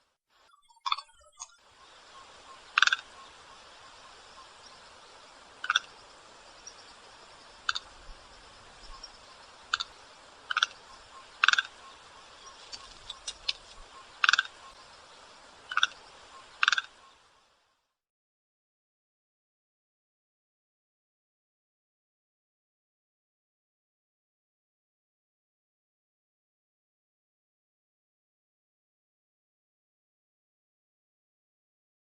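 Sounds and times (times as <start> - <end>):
recording hiss: 0.0 - 18.0
bird giving sharp calls: 2.0 - 4.8, 5.6 - 6.0, 7.6 - 8.0, 8.7 - 14.8, 15.6 - 17.2.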